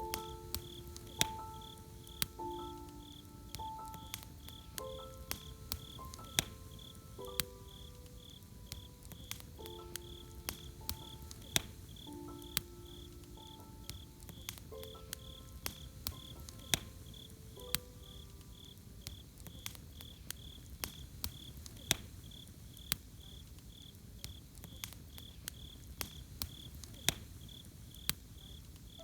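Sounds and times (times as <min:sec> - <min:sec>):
campfire crackling and popping: 0:00.0 - 0:29.0
cricket chirping: 0:00.0 - 0:29.0.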